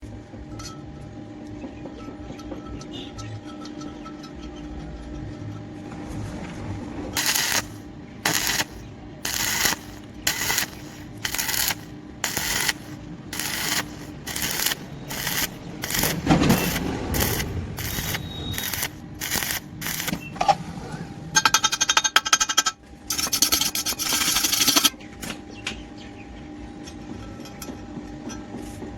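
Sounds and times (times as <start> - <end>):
welding arc crackling and hissing: 7.2 - 20.4, 23.1 - 24.9.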